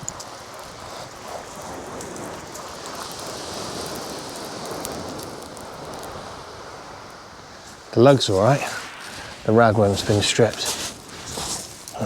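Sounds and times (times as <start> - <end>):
waves washing over shingle: 0.0 - 12.0.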